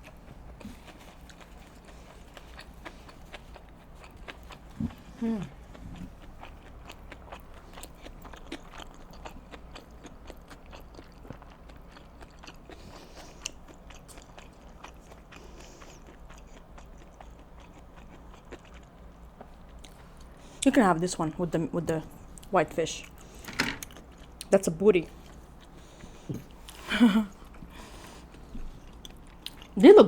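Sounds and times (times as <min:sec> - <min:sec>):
chewing with wet mouth clicks: 0:00.0 - 0:20.4, 0:23.8 - 0:24.5, 0:28.3 - 0:29.8.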